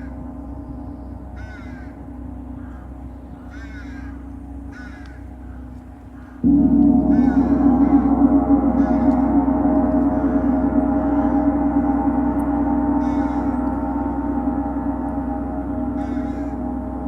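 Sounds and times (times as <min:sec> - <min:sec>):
gong ringing: 0:06.4 - 0:17.0.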